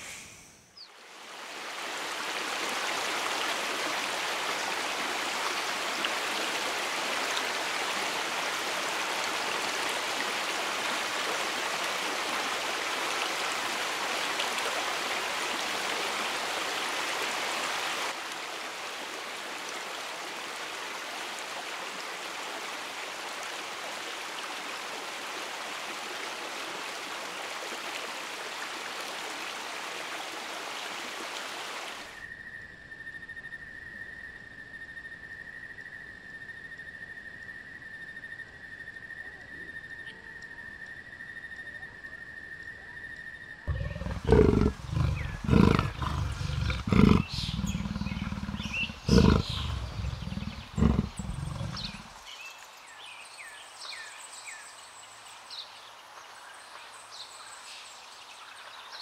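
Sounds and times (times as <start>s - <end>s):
stream flowing over rocks: 1.1s - 32.1s.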